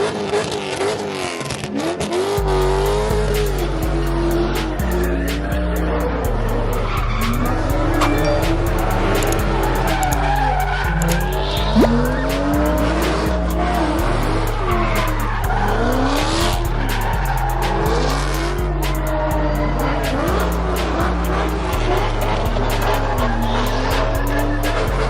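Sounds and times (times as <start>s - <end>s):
engines revving: 0.0s - 25.0s
tyres squealing and skidding: 0.0s - 25.0s
music with heavy bass beat: 2.2s - 25.0s.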